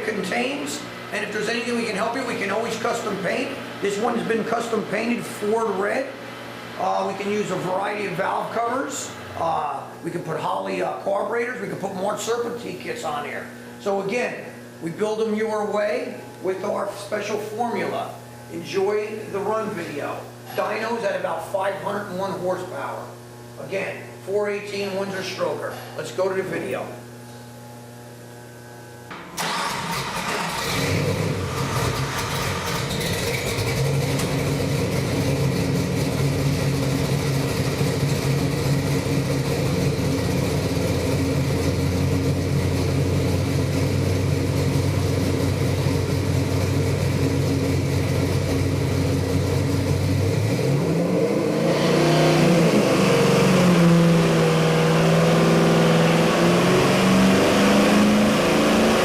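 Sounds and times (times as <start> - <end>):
engine idling and revving: 29.4 - 59.0.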